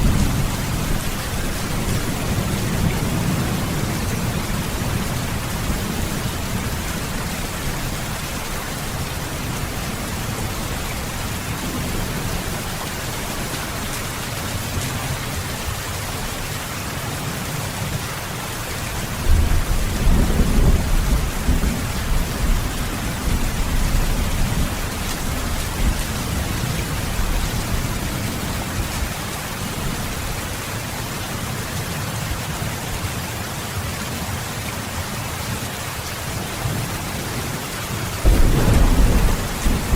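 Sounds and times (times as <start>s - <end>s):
low thunder rumbling: 0.0s - 12.8s, 19.2s - 29.0s, 38.2s - 39.9s
steady rain: 0.0s - 39.9s.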